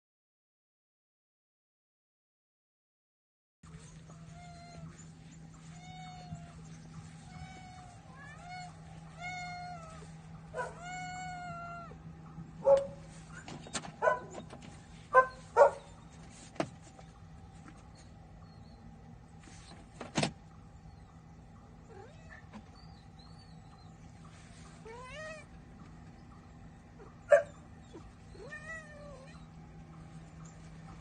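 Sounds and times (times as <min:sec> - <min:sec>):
steady low hum: 0:03.6 - 0:31.0
cat meowing: 0:04.1 - 0:04.9, 0:05.6 - 0:06.6, 0:07.2 - 0:12.0, 0:21.9 - 0:22.5, 0:24.8 - 0:25.6, 0:28.0 - 0:29.5.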